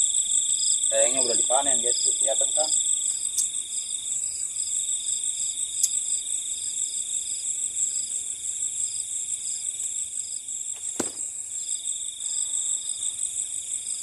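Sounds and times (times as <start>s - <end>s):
crickets trilling: 0.0s - 14.0s
insect chirping: 0.0s - 14.0s
sharp knock on bamboo hut: 11.0s - 11.3s.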